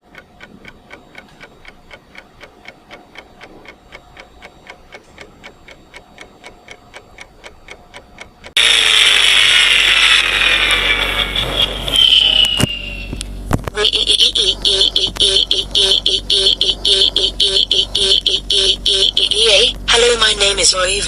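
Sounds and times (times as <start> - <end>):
steady ticking: 0.0 - 8.6, 13.2 - 20.1
harsh noise with falling pitches: 8.5 - 20.4.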